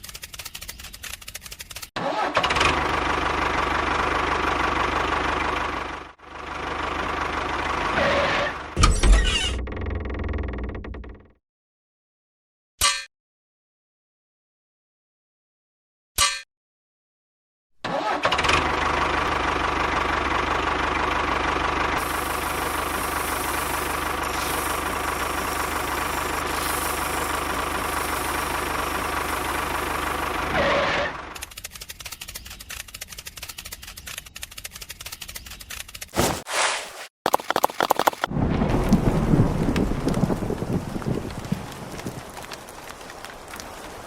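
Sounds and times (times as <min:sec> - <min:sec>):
small motor running: 0:22.0 - 0:30.5.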